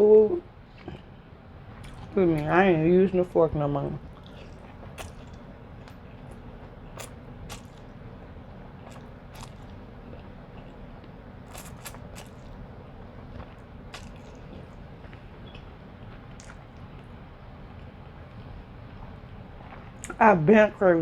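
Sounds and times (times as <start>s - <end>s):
chewing with wet squishing: 0.7s - 2.8s, 3.8s - 20.2s
shells cracking and crunching: 4.1s - 6.0s, 7.0s - 7.9s, 8.9s - 9.8s, 11.5s - 12.6s, 14.0s - 14.7s.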